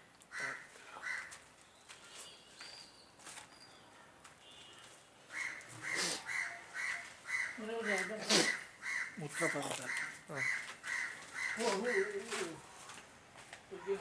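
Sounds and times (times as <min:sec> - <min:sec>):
crows cawing: 0:00.3 - 0:01.4, 0:04.8 - 0:12.9.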